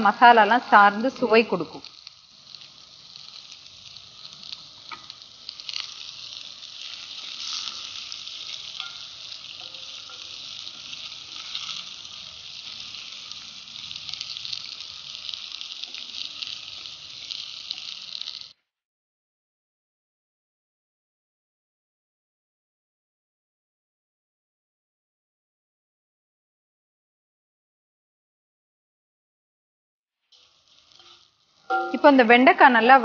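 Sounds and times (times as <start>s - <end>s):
okra sizzling in oil: 0.0s - 18.6s, 30.2s - 33.0s.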